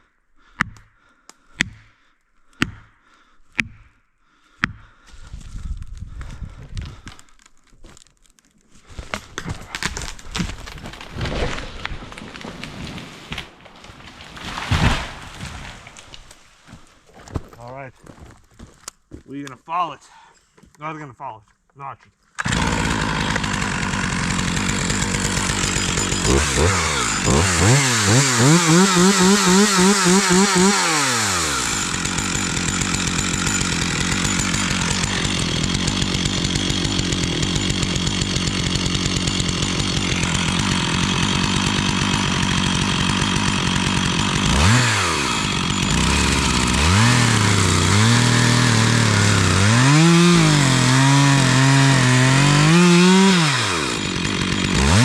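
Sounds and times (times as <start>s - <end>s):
chainsaw engine revving: 22.4s - 55.0s.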